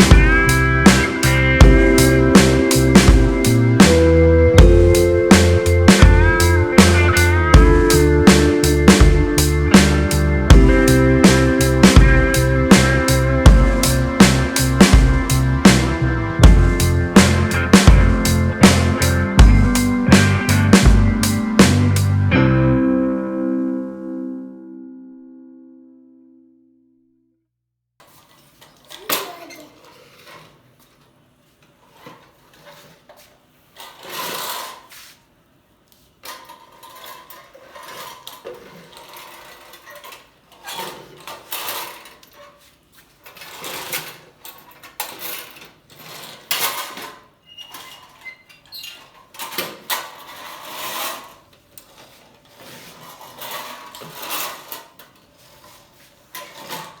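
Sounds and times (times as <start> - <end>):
toys rattling and clattering: 36.2 - 55.2.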